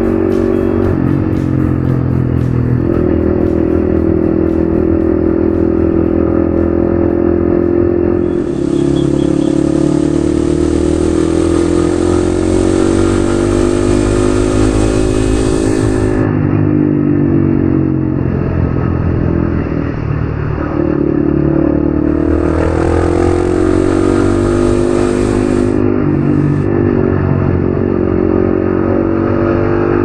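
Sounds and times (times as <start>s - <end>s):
motorcycle engine accelerating: 0.0s - 30.0s
steady hiss: 8.2s - 16.3s, 22.8s - 26.6s.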